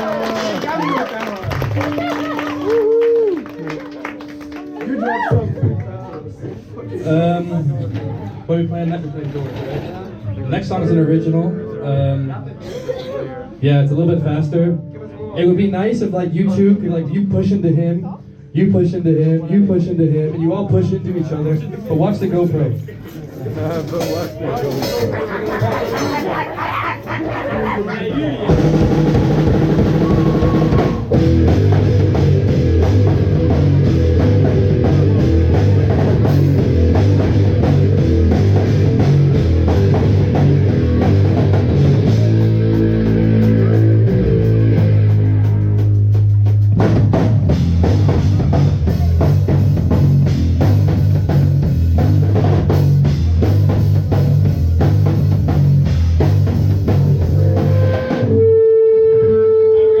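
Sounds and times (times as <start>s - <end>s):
live rock band playing: 1.5s - 5.8s, 23.8s - 60.0s
bass drum: 28.4s - 59.3s.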